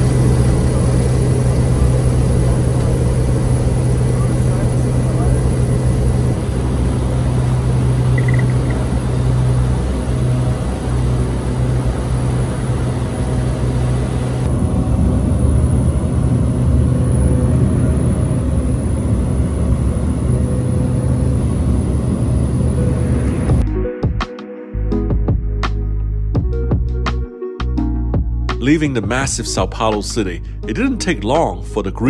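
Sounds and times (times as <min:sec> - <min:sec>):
turboprop engine drone: 0:00.0 - 0:24.2.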